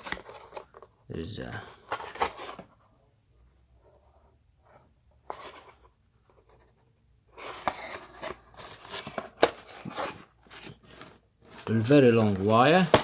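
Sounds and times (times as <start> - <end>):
packaging rustling and crinkling: 7.4 - 13.0.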